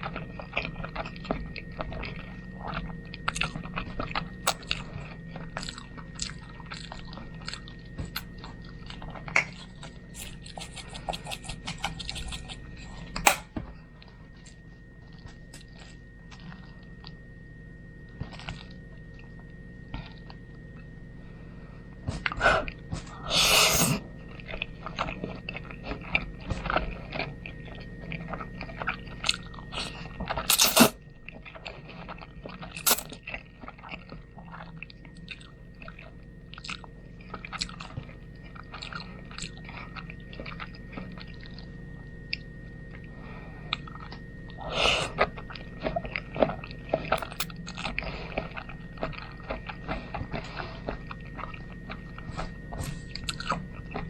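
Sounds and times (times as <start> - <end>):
wet chewing mouth noises: 9.6 - 13.4, 53.1 - 54.0.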